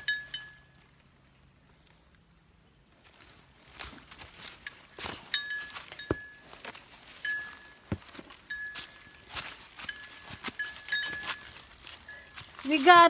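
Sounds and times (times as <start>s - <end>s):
footsteps and scuffs on rock: 3.2s - 13.0s
high metallic clinks: 9.9s - 12.8s.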